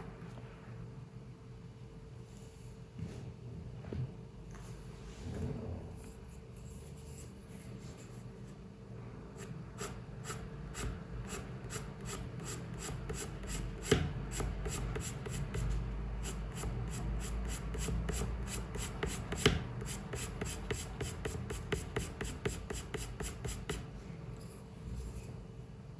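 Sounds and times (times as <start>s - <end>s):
pencil strokes on paper: 9.4s - 23.9s.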